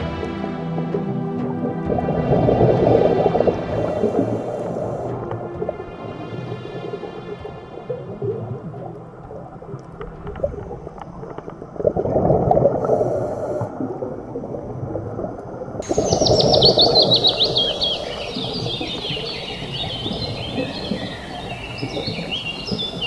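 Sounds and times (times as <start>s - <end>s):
birds singing falling trills: 15.8s - 23.0s.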